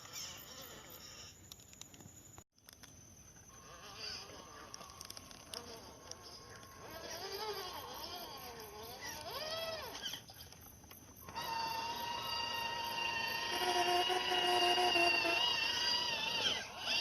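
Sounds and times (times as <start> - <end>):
electric motor whining: 11.2 - 17.0.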